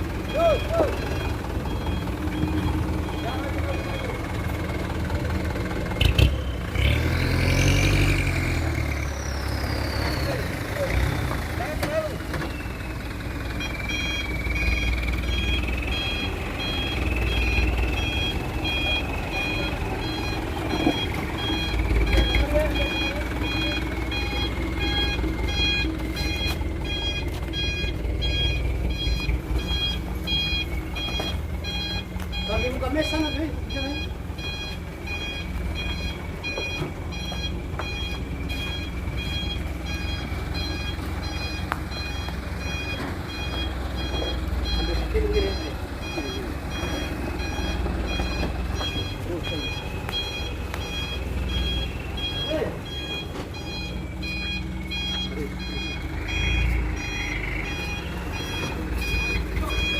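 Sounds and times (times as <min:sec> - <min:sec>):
dump truck engine running: 0:00.0 - 0:59.9.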